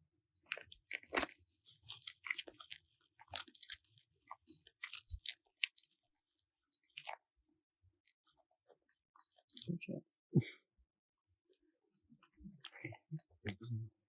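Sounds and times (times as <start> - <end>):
animal chewing crunchy food: 0.2 - 9.7.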